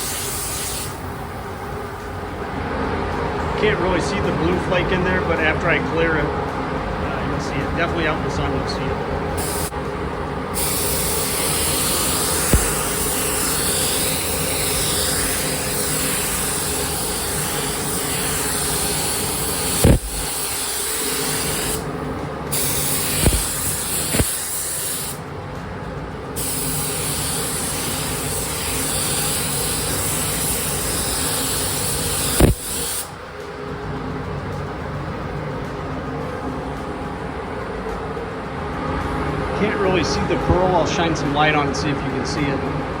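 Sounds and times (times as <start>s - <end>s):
spray gun hissing: 0.0s - 1.8s, 9.4s - 9.8s, 10.5s - 25.2s, 26.4s - 33.2s.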